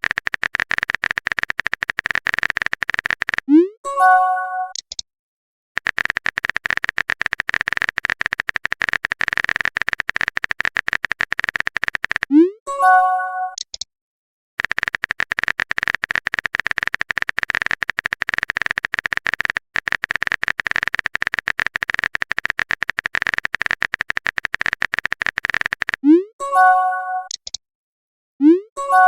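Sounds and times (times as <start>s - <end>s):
stuttering electronic noise: 0.0s - 3.4s, 5.8s - 12.3s, 14.6s - 26.0s.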